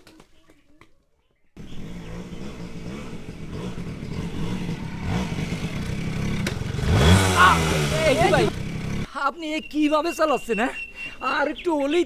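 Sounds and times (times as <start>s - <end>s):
motorcycle engine revving: 1.6s - 9.1s.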